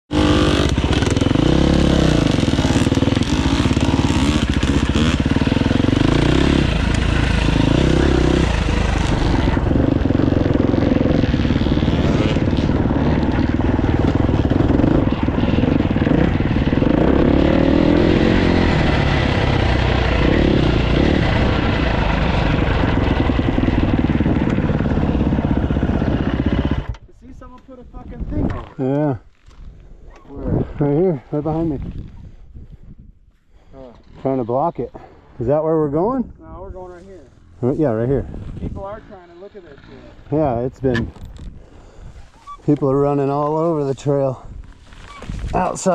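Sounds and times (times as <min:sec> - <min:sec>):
dirt bike engine revving: 0:00.1 - 0:26.9.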